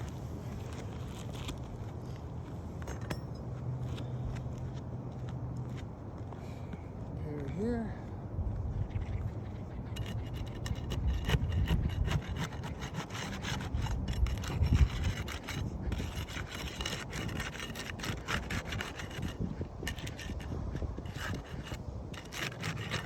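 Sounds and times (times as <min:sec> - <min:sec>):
tool scraping hard material: 0:09.9 - 0:23.0.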